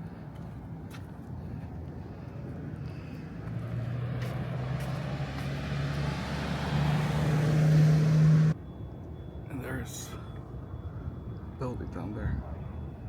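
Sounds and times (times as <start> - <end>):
road noise: 0.0 - 13.0
vehicle engine driving past: 2.0 - 8.6.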